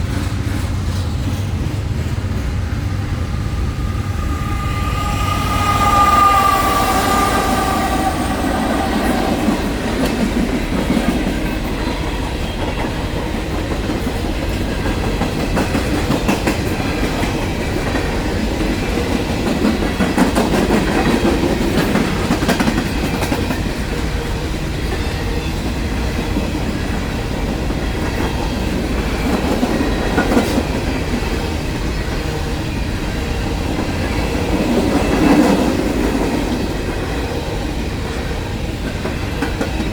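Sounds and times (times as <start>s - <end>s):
freight train wheels clacking on rails: 0.0s - 39.9s
locomotive horn: 3.0s - 10.3s.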